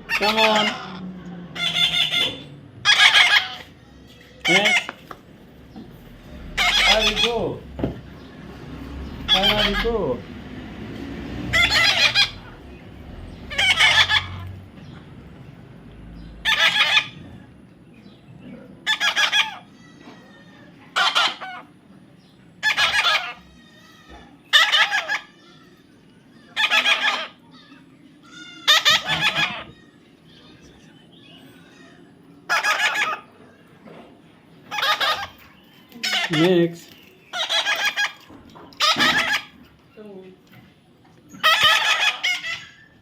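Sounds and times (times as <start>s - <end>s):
parrot squawking: 0.0s - 5.1s, 6.3s - 7.7s, 9.0s - 10.2s, 11.5s - 12.6s, 13.3s - 14.6s, 16.4s - 17.3s, 18.8s - 21.7s, 22.6s - 30.7s, 31.4s - 33.4s, 34.7s - 39.7s, 41.3s - 43.0s.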